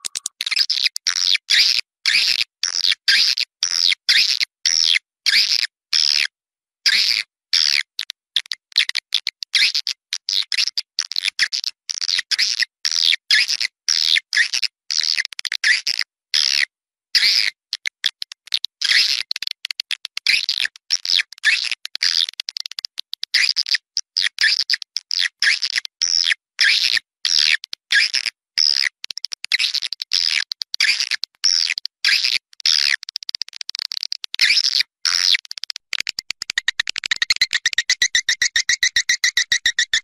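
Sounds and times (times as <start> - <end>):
high twittering bird chirps: 0.0 - 0.3, 36.0 - 40.0.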